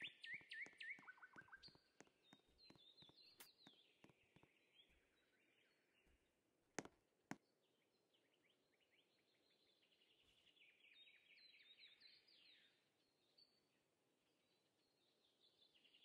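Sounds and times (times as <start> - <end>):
faint bird trill: 0.0 - 6.0.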